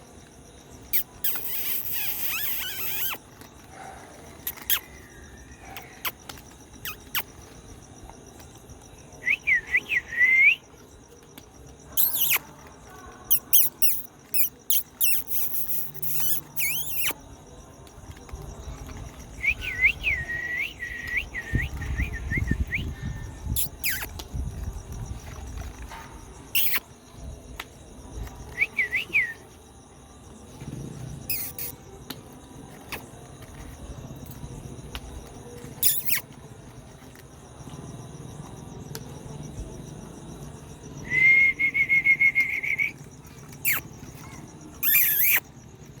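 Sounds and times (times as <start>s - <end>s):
cricket-like high hum: 0.0s - 46.0s
bird-like chirps and whistles: 0.9s - 3.2s, 4.4s - 5.2s, 9.2s - 10.7s, 12.0s - 12.4s, 13.3s - 17.2s, 19.3s - 24.2s, 26.5s - 26.8s, 28.5s - 29.5s, 31.3s - 31.8s, 35.8s - 36.2s, 41.0s - 45.5s
trilled whistle: 9.2s - 10.6s, 19.4s - 23.0s, 28.5s - 29.4s, 41.0s - 43.0s, 43.6s - 43.8s.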